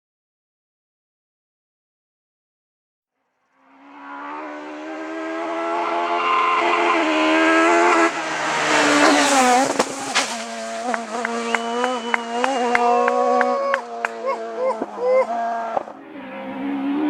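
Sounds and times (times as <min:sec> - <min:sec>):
rally car engine at full throttle: 0:03.7 - 0:17.0.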